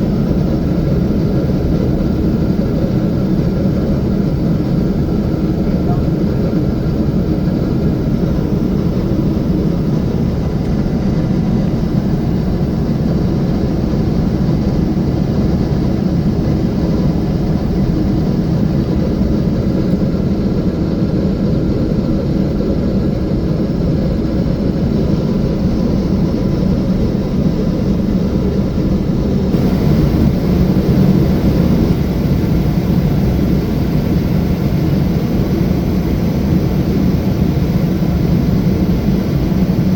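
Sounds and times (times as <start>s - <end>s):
airliner cabin engine rumble: 0.0s - 39.9s
high hiss: 29.6s - 39.9s.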